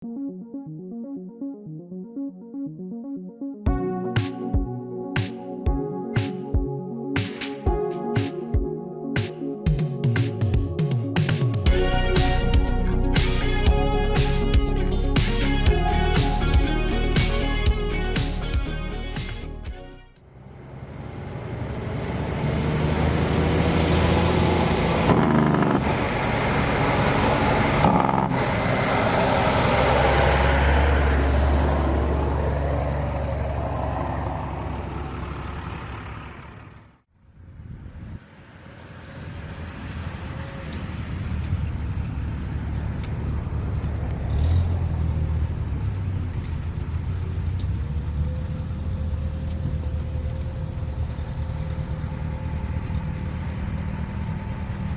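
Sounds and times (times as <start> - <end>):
truck engine passing by: 20.2 - 54.9
truck engine running steadily: 32.0 - 54.9.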